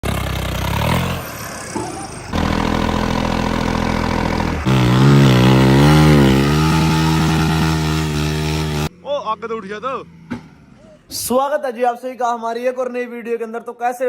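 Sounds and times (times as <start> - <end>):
heavy vehicle engine revving: 0.0 - 8.9.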